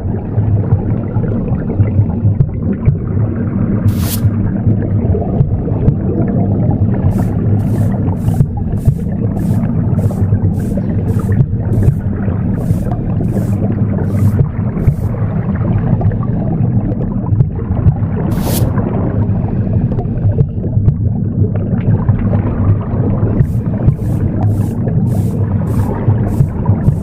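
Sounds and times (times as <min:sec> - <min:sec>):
broom sweeping: 0:03.9 - 0:04.4, 0:07.1 - 0:15.2, 0:18.3 - 0:18.8, 0:23.4 - 0:27.0.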